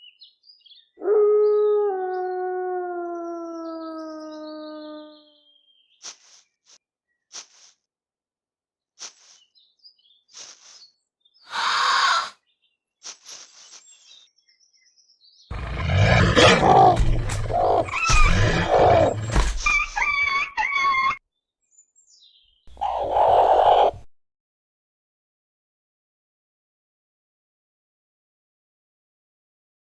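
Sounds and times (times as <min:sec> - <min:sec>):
deep roaring and snarling: 0:15.5 - 0:20.4, 0:22.7 - 0:24.0
high chirping screeches: 0:22.7 - 0:24.0.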